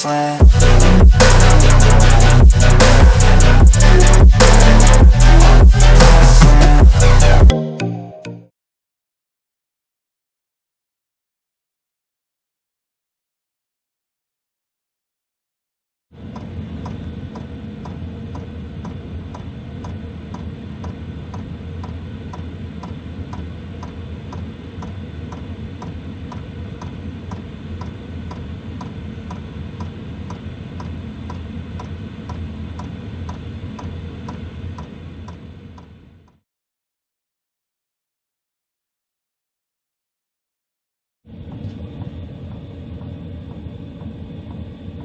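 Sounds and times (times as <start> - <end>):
heater fan and burner rumble: 16.2 - 36.3, 41.3 - 45.0.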